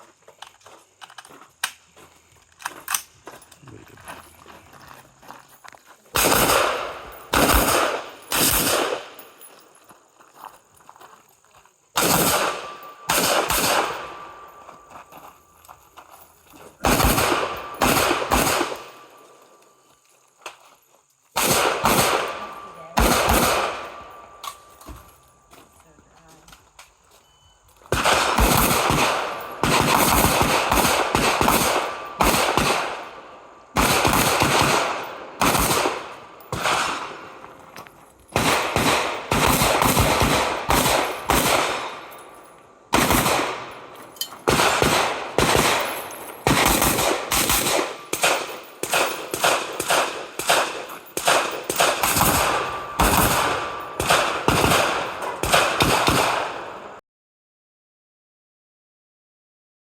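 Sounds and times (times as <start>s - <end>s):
rifle gunfire: 6.2s - 9.4s, 12.0s - 14.6s, 16.8s - 19.2s, 21.4s - 24.7s, 27.9s - 37.6s, 38.3s - 42.3s, 42.9s - 57.0s.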